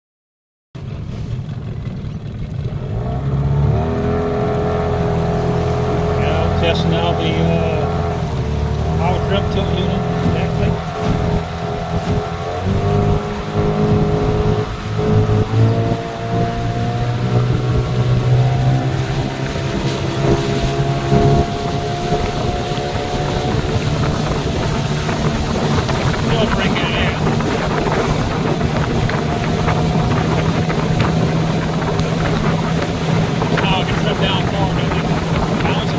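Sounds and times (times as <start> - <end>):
outboard motor running: 0.8 - 35.9
wind noise on microphone: 7.9 - 35.9.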